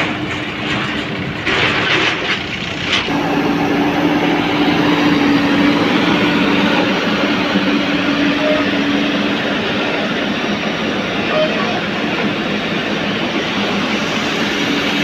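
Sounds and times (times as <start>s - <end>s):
diesel engine running: 0.0s - 15.0s
steady hum: 3.1s - 15.0s.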